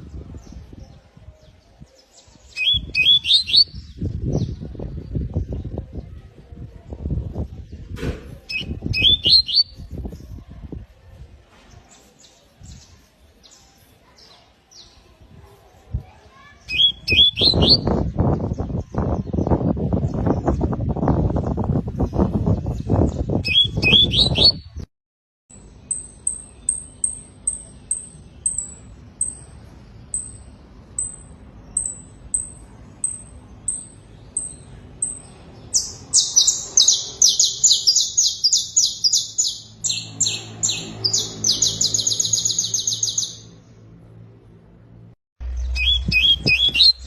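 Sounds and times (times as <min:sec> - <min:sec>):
canary singing: 0:02.2 - 0:04.6, 0:08.5 - 0:09.9, 0:16.6 - 0:18.6, 0:22.2 - 0:24.8, 0:25.5 - 0:43.6, 0:45.4 - 0:47.0.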